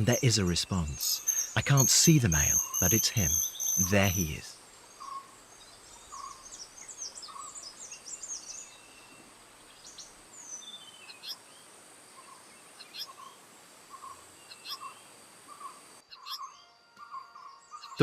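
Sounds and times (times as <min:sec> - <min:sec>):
kingfishers calling shrill chirps: 0:00.0 - 0:08.9, 0:13.9 - 0:18.0
high insect whine: 0:00.0 - 0:16.4.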